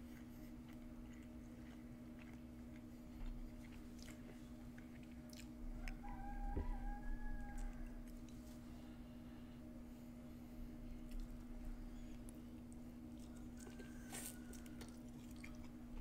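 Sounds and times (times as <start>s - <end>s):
chewing with mouth clicks: 0.0s - 6.1s, 10.8s - 16.0s
steady low hum: 0.0s - 16.0s.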